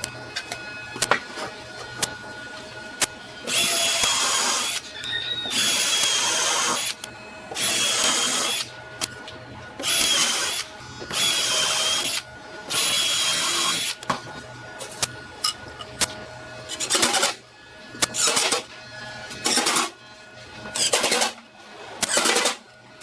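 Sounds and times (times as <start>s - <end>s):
electric drill motor whine: 0.0s - 21.3s.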